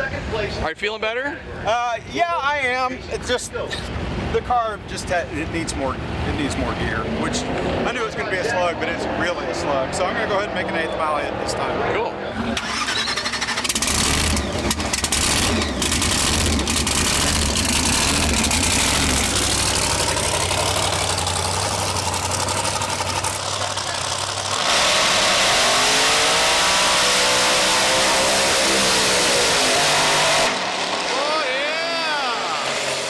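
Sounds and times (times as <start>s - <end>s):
drag car engine rumbling: 3.9s - 33.0s.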